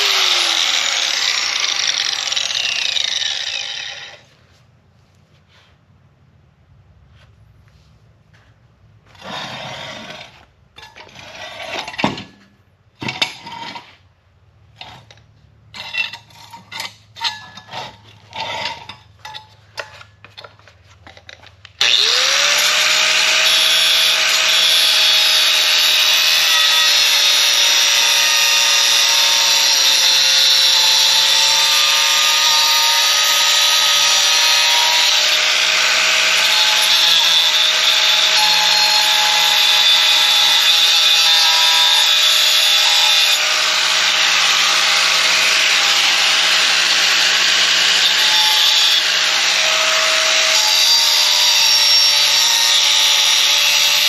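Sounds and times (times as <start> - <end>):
power tool grinding: 0.0 - 4.3, 9.1 - 12.2, 14.8 - 54.0
scraping strokes on metal: 14.8 - 20.7.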